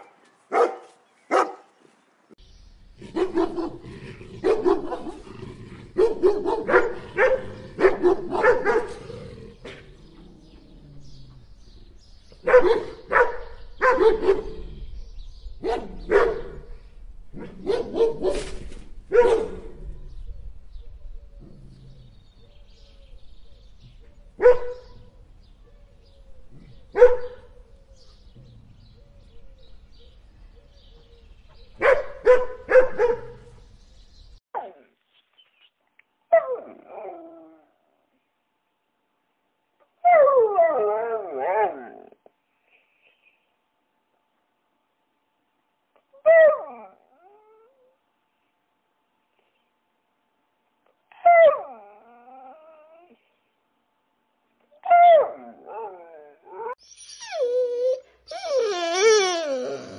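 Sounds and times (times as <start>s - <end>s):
dog barking: 0.0s - 1.7s, 3.1s - 3.8s, 4.4s - 5.2s, 6.0s - 9.0s, 12.4s - 14.6s, 15.6s - 16.6s, 17.4s - 18.5s, 19.1s - 19.7s, 24.4s - 24.9s, 26.9s - 27.4s, 31.8s - 33.4s.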